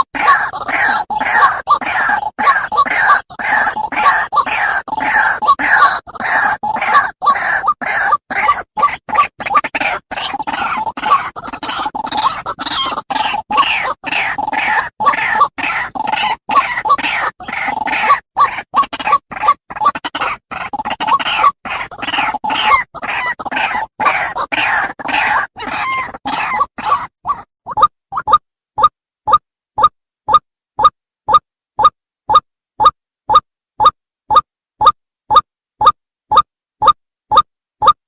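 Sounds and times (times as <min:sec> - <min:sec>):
waterhen croaking calls: 0:00.0 - 0:29.4.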